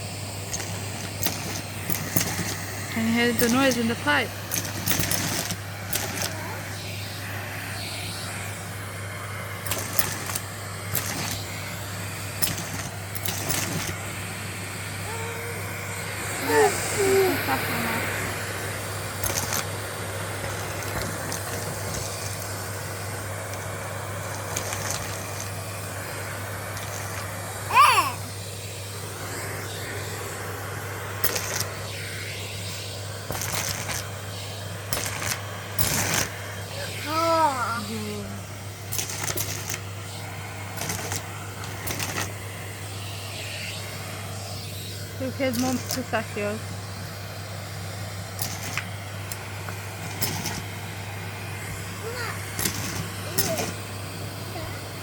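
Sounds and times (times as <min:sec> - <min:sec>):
vacuum cleaner running: 0:00.0 - 0:55.0
shells clattering through hose: 0:00.4 - 0:06.4, 0:09.6 - 0:11.7, 0:12.3 - 0:14.0, 0:19.2 - 0:19.8, 0:20.4 - 0:22.6, 0:23.5 - 0:25.6, 0:26.6 - 0:27.4, 0:31.2 - 0:31.8, 0:33.3 - 0:34.2, 0:34.9 - 0:36.4, 0:38.8 - 0:39.9, 0:40.7 - 0:42.4, 0:45.4 - 0:46.2, 0:48.4 - 0:50.7, 0:52.4 - 0:53.9.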